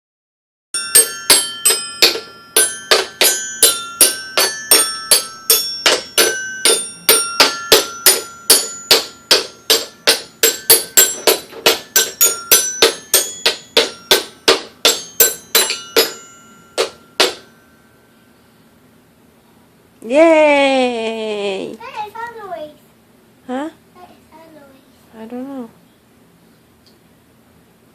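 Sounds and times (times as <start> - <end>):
toy xylophone struck with mallet: 0.8 - 17.8.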